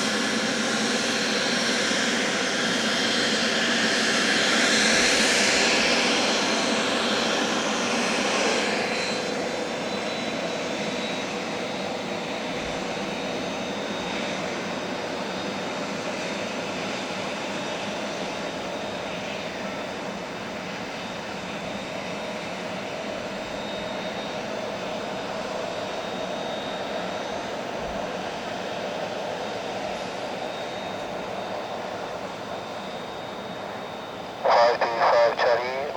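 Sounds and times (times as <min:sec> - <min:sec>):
jet engine whine and rush: 0:00.0 - 0:35.9.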